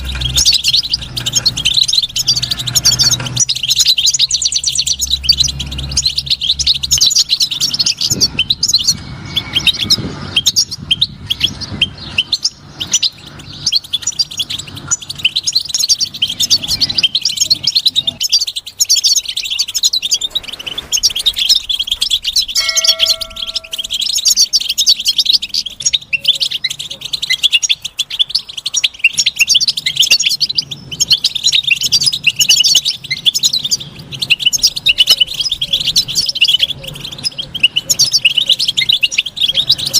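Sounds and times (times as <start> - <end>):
finch twittering song: 0.0 - 39.9
ringing bell-like tone: 22.6 - 24.6.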